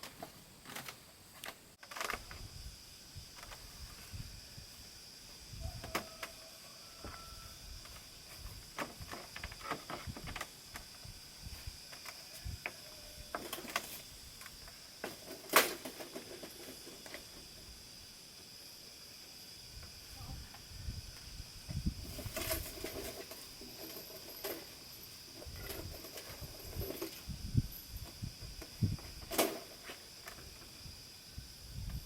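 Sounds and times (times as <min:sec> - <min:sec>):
high insect drone: 0:00.0 - 0:32.0.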